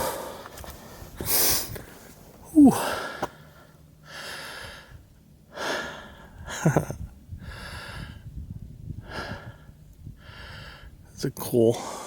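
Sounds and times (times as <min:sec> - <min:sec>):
man breathing hard: 0:00.0 - 0:00.5, 0:02.5 - 0:06.6, 0:07.4 - 0:08.3, 0:09.0 - 0:11.0, 0:11.8 - 0:12.0
man grunting: 0:02.5 - 0:02.9.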